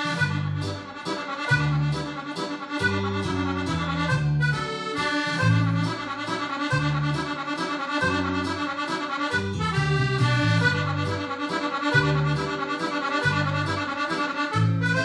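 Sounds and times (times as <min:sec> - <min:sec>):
accordion dance tune: 0:00.0 - 0:15.0
bass line: 0:00.0 - 0:15.0.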